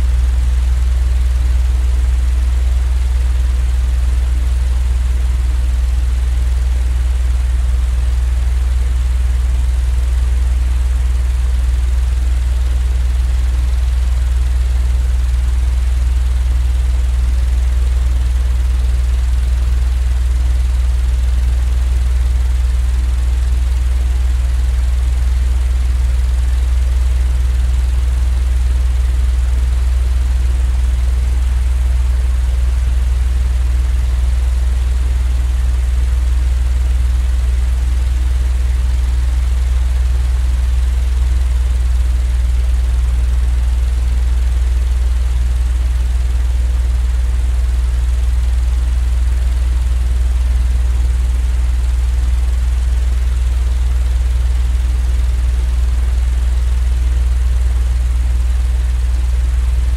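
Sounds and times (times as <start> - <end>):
low droning rumble: 0.0 - 13.5, 22.1 - 29.6, 35.2 - 50.5, 54.9 - 59.9.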